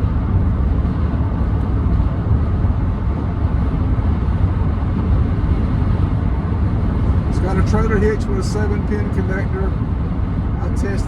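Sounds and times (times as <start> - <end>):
road and engine noise in cab: 0.0 - 11.0.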